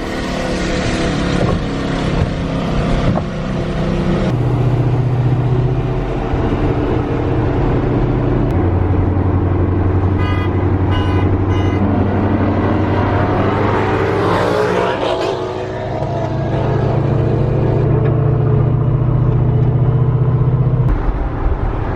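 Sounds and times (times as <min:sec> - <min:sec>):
car horn toots: 0:10.1 - 0:12.0.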